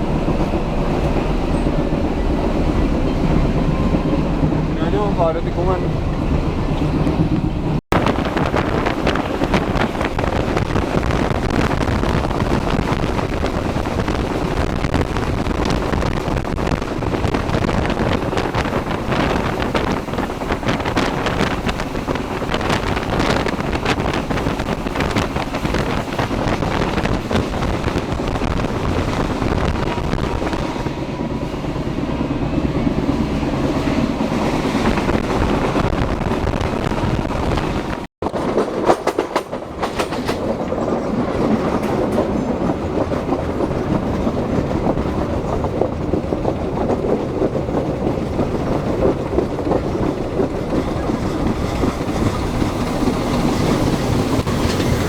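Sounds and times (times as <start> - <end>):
train rumbling on track: 0.0 - 55.0
wind buffeting microphone: 0.0 - 55.0
wheels clicking over rail joints: 38.2 - 55.0.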